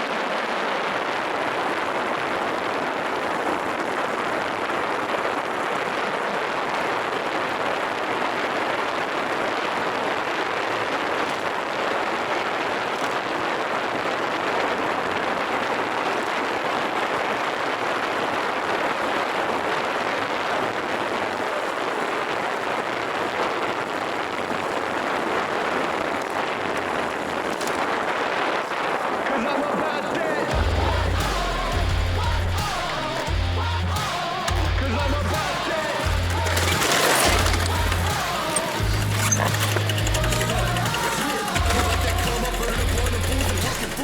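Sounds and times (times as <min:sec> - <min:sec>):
rushing wind and road noise: 0:01.1 - 0:30.6.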